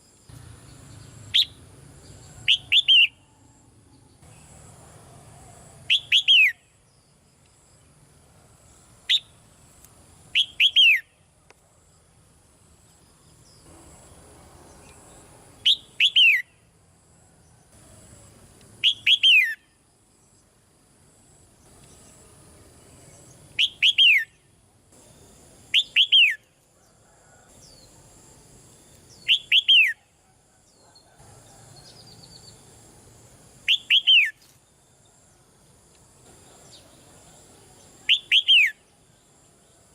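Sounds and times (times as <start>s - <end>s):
bulbul calling: 1.2s - 1.6s, 2.4s - 3.3s, 5.9s - 6.6s, 10.4s - 11.2s, 15.6s - 16.6s, 18.8s - 19.6s, 23.6s - 24.4s, 25.7s - 26.4s, 29.2s - 30.1s, 33.7s - 34.4s, 38.0s - 38.8s.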